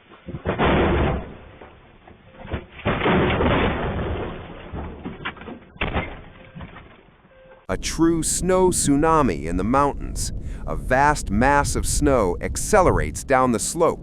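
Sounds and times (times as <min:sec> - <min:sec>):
boulders crashing down: 0:00.0 - 0:07.1.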